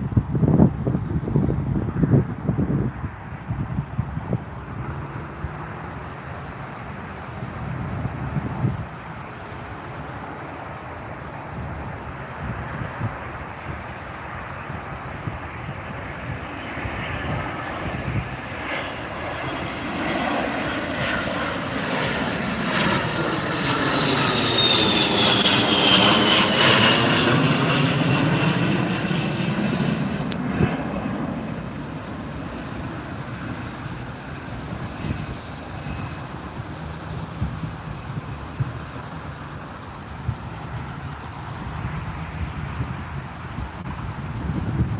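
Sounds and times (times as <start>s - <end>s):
jet aircraft taking off: 0.0s - 44.9s
high engine whine falling in pitch: 14.7s - 42.1s.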